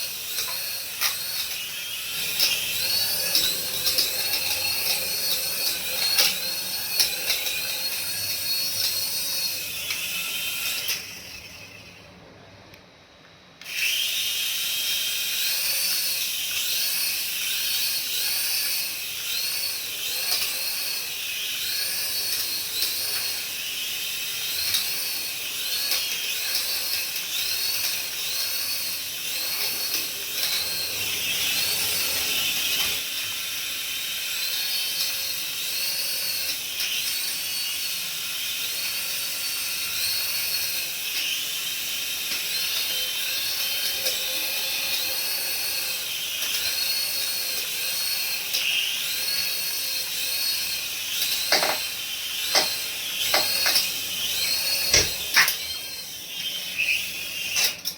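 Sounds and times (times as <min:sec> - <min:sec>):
toy electric motor whirring: 0:00.0 - 0:12.2, 0:13.6 - 0:57.9.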